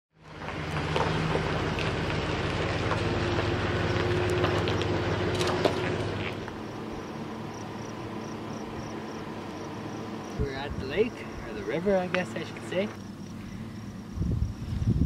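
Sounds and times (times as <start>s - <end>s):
vehicle engine running: 0.2s - 15.0s.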